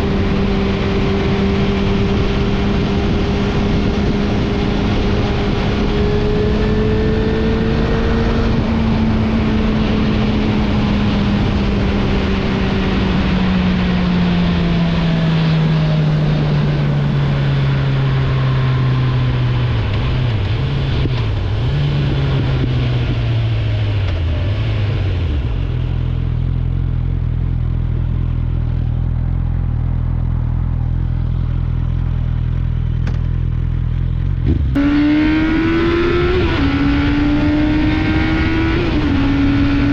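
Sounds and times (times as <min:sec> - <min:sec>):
motorcycle engine slowing: 0:00.0 - 0:39.9
motorcycle engine idling: 0:25.6 - 0:34.4.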